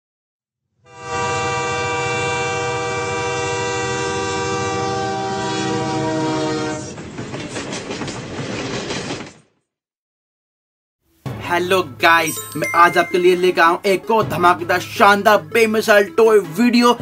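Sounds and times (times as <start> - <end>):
train horn blast: 0.9 - 7.0
train wheels clickety-clack: 6.8 - 9.5.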